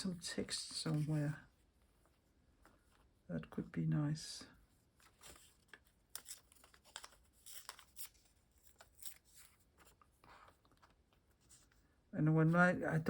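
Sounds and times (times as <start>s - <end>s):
paper rustling: 4.8s - 11.9s.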